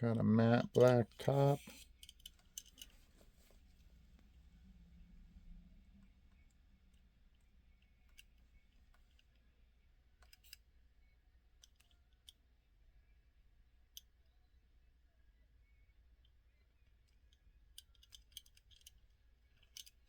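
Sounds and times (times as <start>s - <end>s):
low steady hum: 0.0s - 20.0s
small clicks of toy car handling: 0.7s - 4.3s, 6.0s - 9.5s, 10.2s - 10.7s, 11.6s - 12.4s, 16.2s - 20.0s.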